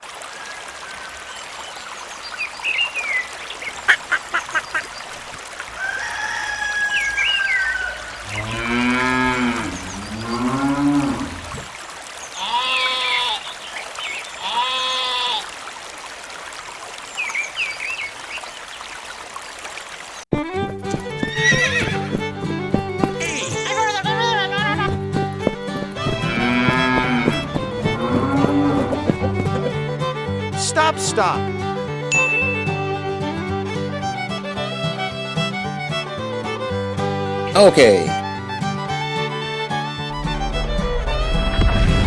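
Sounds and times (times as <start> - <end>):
music: 20.3 - 42.0
higher animal calls: 25.4 - 29.9.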